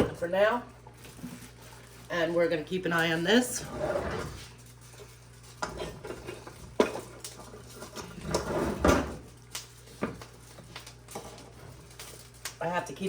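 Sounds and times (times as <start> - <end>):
dishes and cookware clinking: 5.6 - 9.2.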